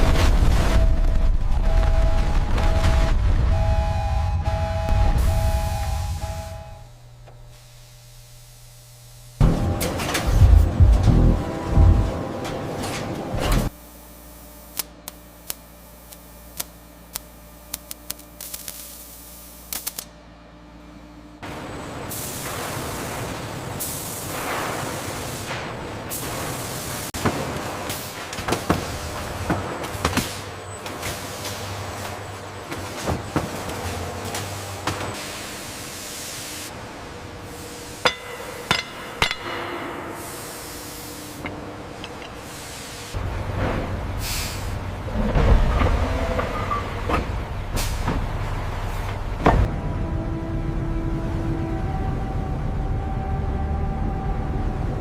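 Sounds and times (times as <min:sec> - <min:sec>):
metal-on-metal strikes: 0:38.0 - 0:40.2.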